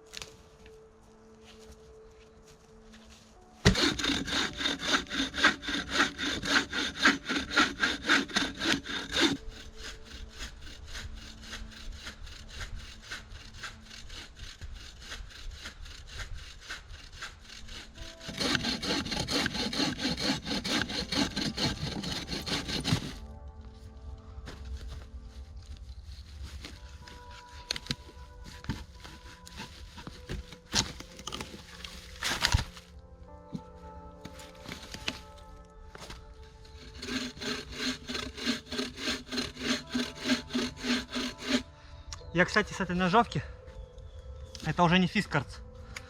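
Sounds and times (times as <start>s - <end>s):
handsaw cutting wooden pole: 3.6s - 23.2s, 26.5s - 32.8s, 36.6s - 41.7s.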